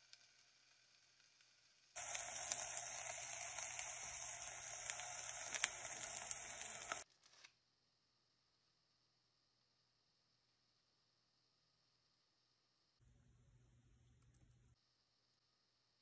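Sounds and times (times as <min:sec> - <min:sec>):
burger patty sizzling: 0:00.0 - 0:07.1.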